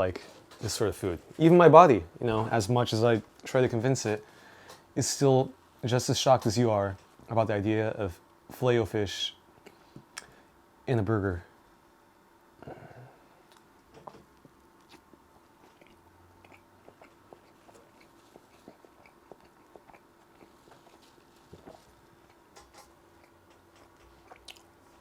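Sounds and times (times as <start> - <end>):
faint steady hum: 0.0 - 25.0
person chewing food: 14.8 - 25.0.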